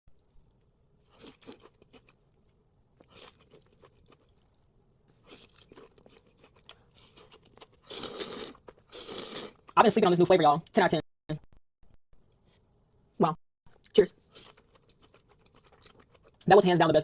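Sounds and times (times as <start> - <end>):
person chewing crunchy food: 0.1 - 9.8, 14.2 - 16.4.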